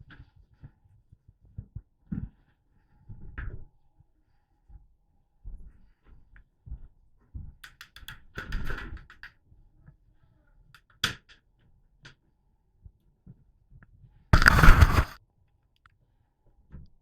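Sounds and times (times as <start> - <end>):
scraping clicks: 14.4 - 15.2
sharp clicks and knocks: 14.4 - 15.2.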